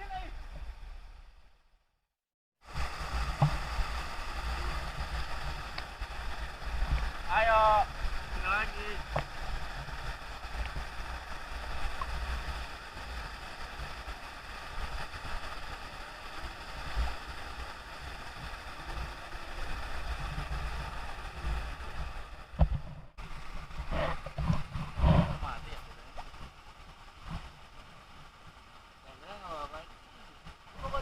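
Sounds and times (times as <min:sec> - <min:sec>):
waterfall rushing: 0:02.7 - 0:22.6.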